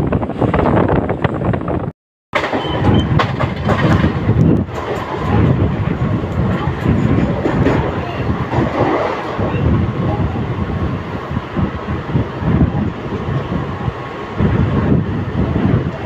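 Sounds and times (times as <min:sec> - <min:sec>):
electric train rumbling on rails: 0:00.0 - 0:16.0
wheels clicking over rail joints: 0:02.4 - 0:09.6.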